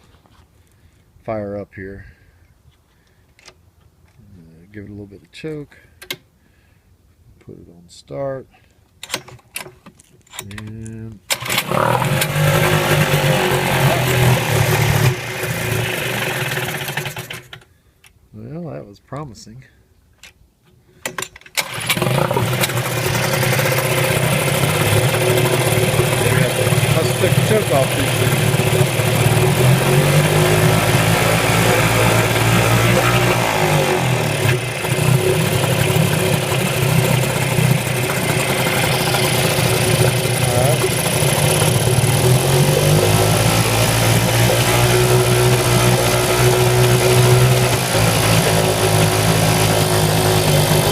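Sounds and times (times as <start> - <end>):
outboard motor sputtering: 11.3 - 17.5, 21.6 - 50.9.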